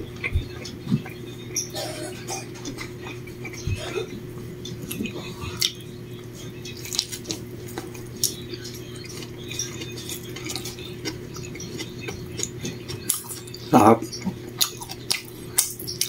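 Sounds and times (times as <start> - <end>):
steady low hum: 0.0 - 16.0
person chewing: 0.2 - 16.0.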